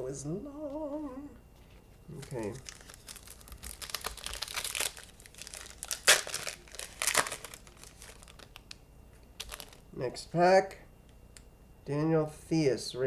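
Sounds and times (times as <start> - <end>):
plastic wrapper crinkling: 2.1 - 8.8, 9.4 - 9.9.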